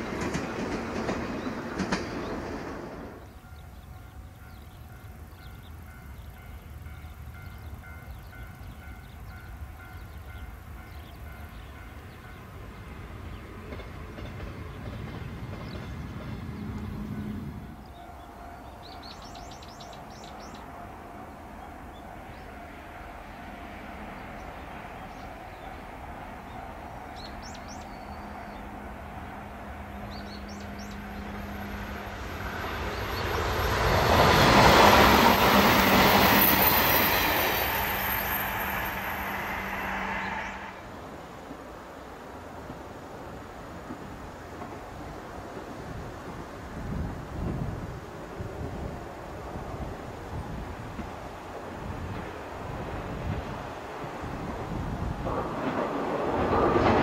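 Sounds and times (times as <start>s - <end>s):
electric train approaching: 0.0s - 57.0s
bird chirps: 17.8s - 20.7s.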